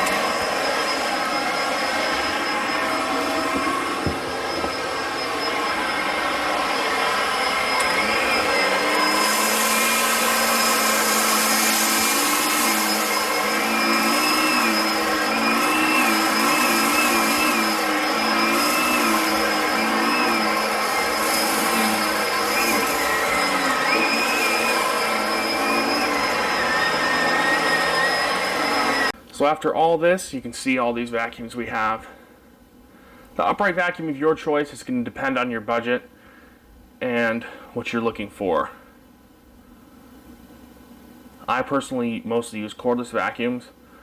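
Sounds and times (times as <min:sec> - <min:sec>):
upright vacuum cleaner whining: 0:00.0 - 0:29.2.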